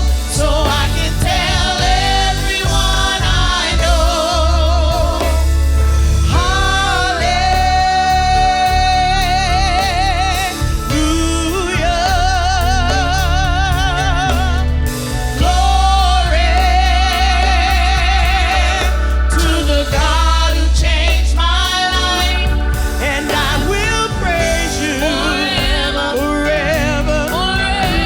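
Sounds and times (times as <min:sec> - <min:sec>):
band with deep bass: 0:00.0 - 0:28.0
gospel singer with vibrato: 0:00.0 - 0:28.0.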